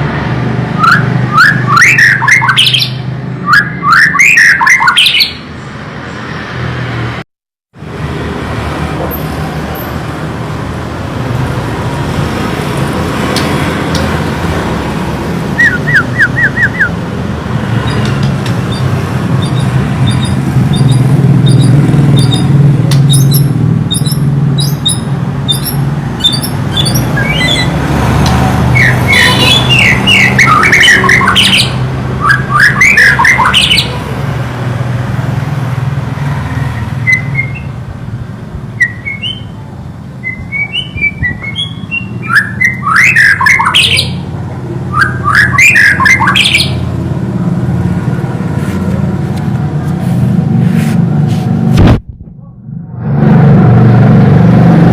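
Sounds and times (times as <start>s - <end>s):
bird singing whistled phrases: 15.6s - 17.0s, 28.8s - 33.9s, 37.0s - 37.7s, 38.8s - 39.6s, 40.2s - 44.2s.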